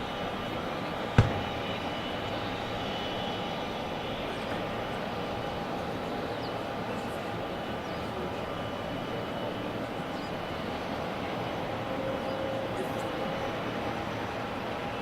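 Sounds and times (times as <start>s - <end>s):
jet engines running: 0.0s - 15.0s
sharp thump: 1.2s - 1.7s.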